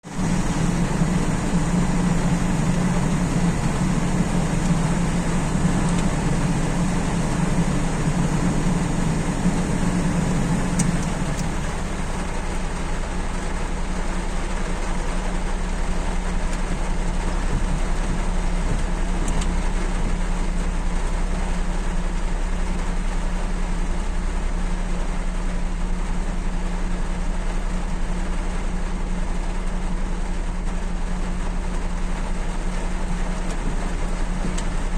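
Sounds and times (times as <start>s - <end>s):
low hum: 0.0s - 24.8s
steady rain falling: 0.0s - 34.9s.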